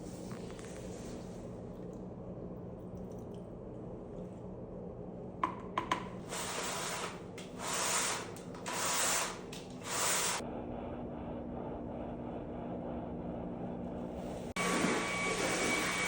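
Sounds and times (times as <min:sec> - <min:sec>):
steam cleaner hissing: 0:06.2 - 0:10.4, 0:14.6 - 0:16.0.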